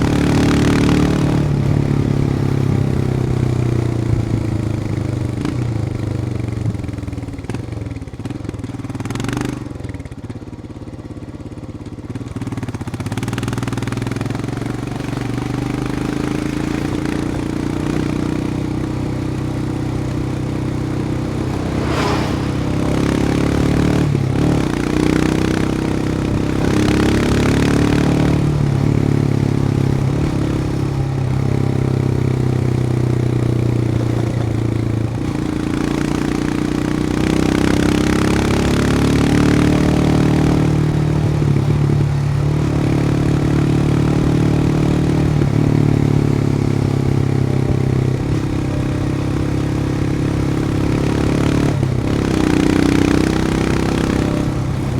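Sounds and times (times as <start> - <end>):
motorcycle engine running: 0.0 - 54.9
wind noise: 20.1 - 25.5.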